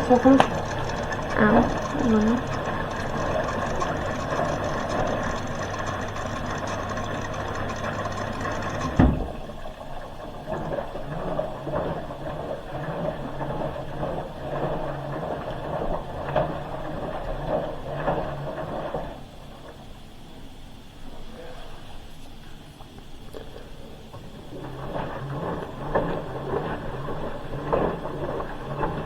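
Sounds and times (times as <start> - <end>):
washing machine drum churning: 0.0 - 21.4, 23.7 - 29.0
washing machine filling with water: 0.0 - 29.0
thud: 9.0 - 9.4.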